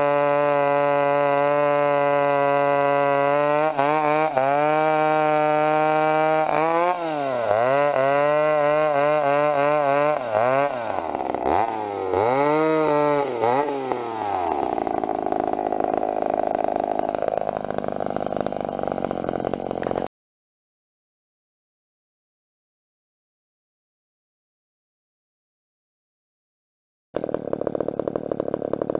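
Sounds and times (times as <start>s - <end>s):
chainsaw running: 0.0s - 20.1s, 27.2s - 28.9s.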